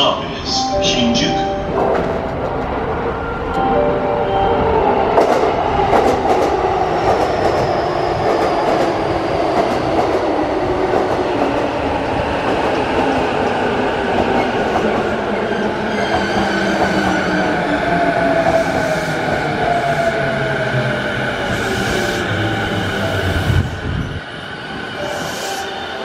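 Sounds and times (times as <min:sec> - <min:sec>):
train wheels rumbling on rail: 0:05.1 - 0:25.7.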